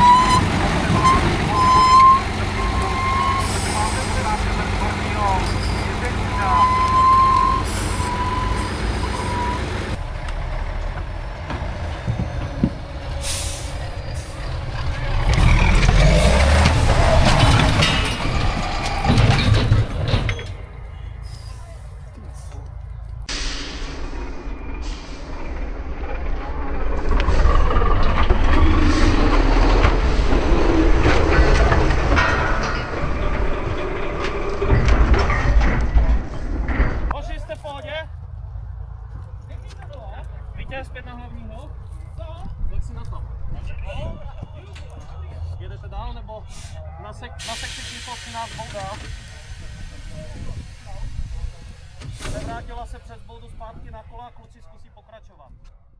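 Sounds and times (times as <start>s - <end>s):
knocks and rattling: 0.0s - 23.3s, 27.0s - 45.6s
diesel truck engine rumbling: 0.0s - 55.5s
high beeps: 6.3s - 9.7s.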